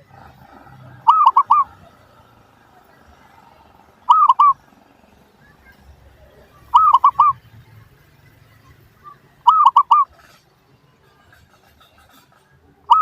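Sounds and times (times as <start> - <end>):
dove cooing: 0.0 - 3.3, 3.9 - 4.8, 6.6 - 7.6, 9.0 - 10.4.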